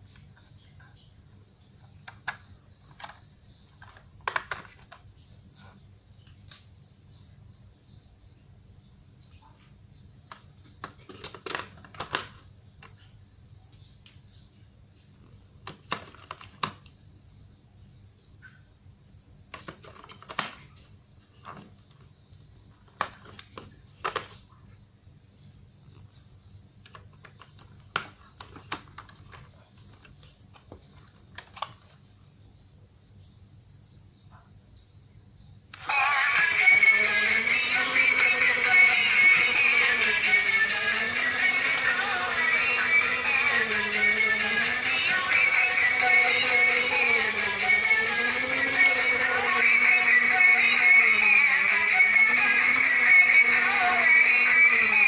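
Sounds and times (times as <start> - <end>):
plastic toys clicking: 2.0 - 5.0, 10.3 - 12.9, 22.8 - 24.4, 26.8 - 32.0.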